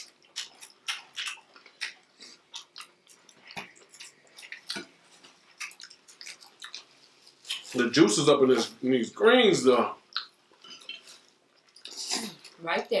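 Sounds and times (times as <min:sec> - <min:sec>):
wet chewing and lip smacks: 0:00.0 - 0:07.8, 0:10.0 - 0:12.6.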